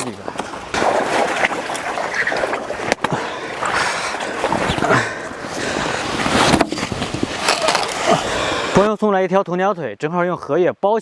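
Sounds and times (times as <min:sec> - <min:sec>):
water sounds: 0:00.0 - 0:08.9
leaves rustling and snapping: 0:06.4 - 0:08.2.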